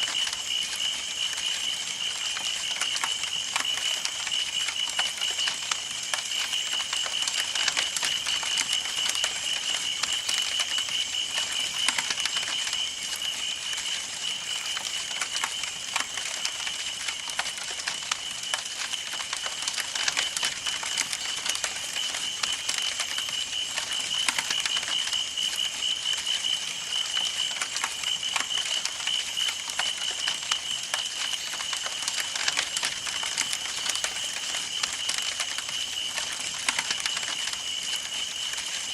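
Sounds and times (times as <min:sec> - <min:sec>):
campfire crackling and popping: 0:00.1 - 0:38.9.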